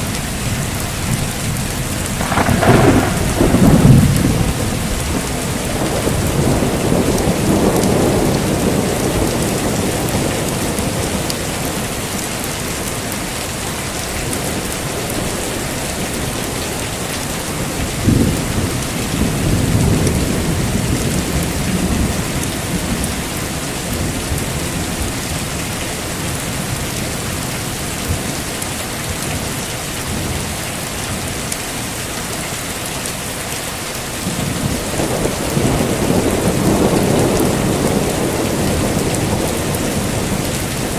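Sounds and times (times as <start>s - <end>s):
heavy rain falling: 0.0s - 40.9s
thunder rumbling: 0.4s - 31.3s, 34.2s - 40.9s
sharp thunderclap: 2.2s - 11.3s.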